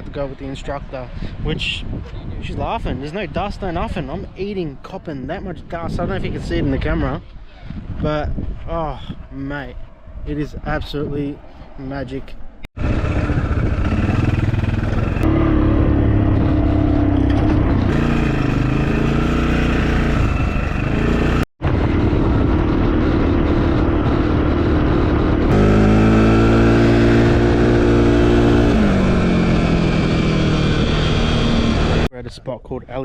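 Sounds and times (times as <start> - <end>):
quad bike engine running: 12.8 - 32.1.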